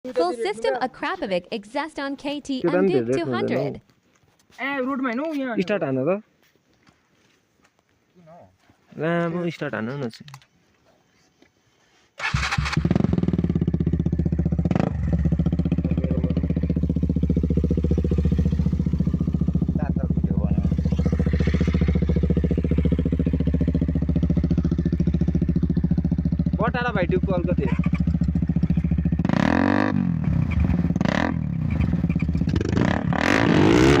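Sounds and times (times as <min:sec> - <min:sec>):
motorcycle engine idling: 0:12.4 - 0:33.0.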